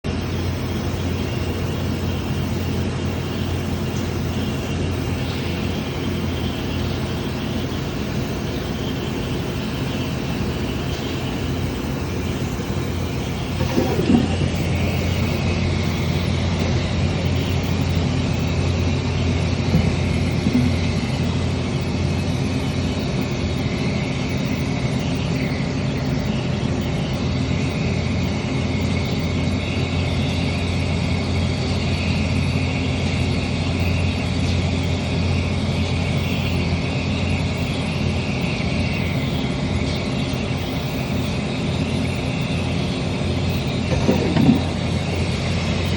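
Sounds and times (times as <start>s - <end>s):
machine humming and hissing: 0.0s - 22.4s, 32.8s - 45.9s.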